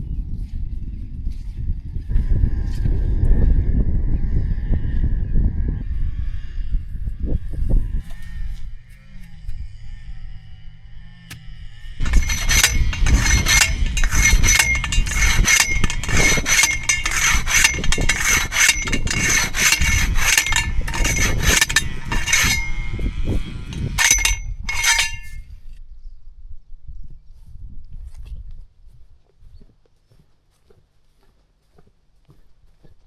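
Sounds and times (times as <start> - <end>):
metal clinking and scraping: 12.0 - 25.4.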